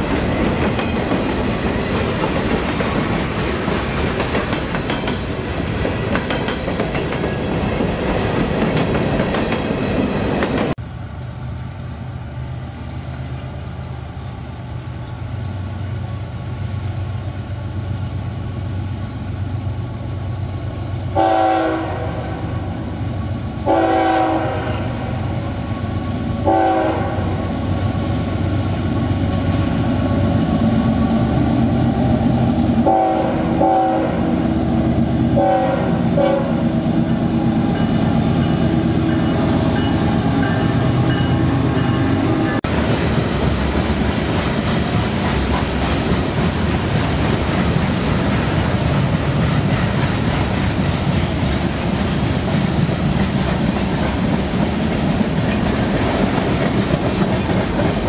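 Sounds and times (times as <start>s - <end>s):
freight cars wheel-on-rail clatter: 0.0s - 10.8s, 27.7s - 58.0s
locomotive air horn blasts: 21.2s - 22.5s, 23.6s - 25.1s, 26.4s - 27.4s, 32.8s - 34.4s, 35.4s - 36.7s.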